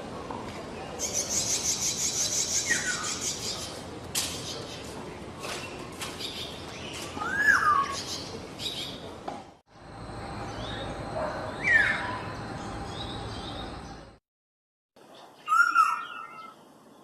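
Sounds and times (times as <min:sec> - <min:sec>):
bird whistling call: 0:15.5 - 0:16.6.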